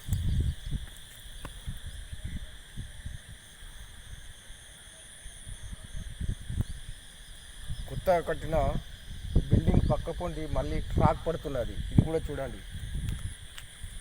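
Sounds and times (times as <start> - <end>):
insects buzzing: 0.0 - 14.0.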